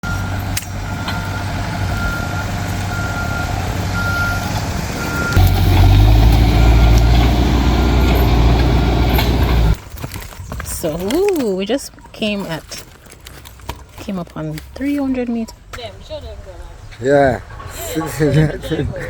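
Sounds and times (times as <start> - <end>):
heavy machine engine: 0.0 - 9.8
reversing alarm beeping: 0.0 - 9.8.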